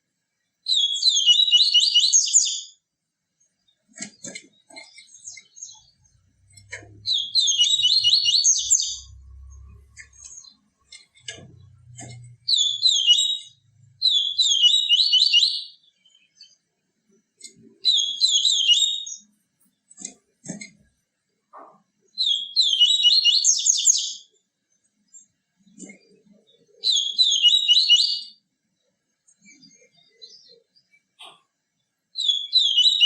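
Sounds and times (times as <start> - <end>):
small bird singing high notes: 7.0 - 10.6, 22.2 - 24.3.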